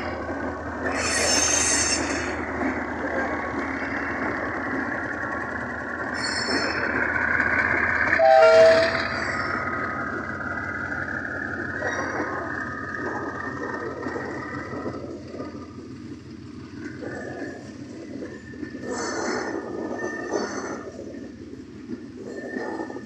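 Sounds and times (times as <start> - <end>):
train wheels rumbling: 0.0 - 23.0
high-pitched wheel squeals: 0.8 - 2.4, 6.1 - 7.0, 8.1 - 9.8
train horn blast: 8.2 - 9.1.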